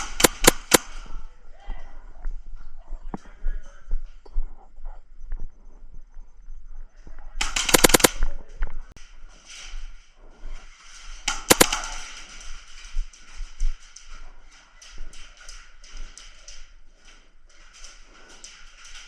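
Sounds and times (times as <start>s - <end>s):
airsoft full-auto burst: 0.0s - 0.9s, 7.4s - 8.2s, 11.3s - 12.0s
airsoft gun single shots: 0.0s - 0.9s, 7.4s - 8.2s, 11.3s - 12.0s.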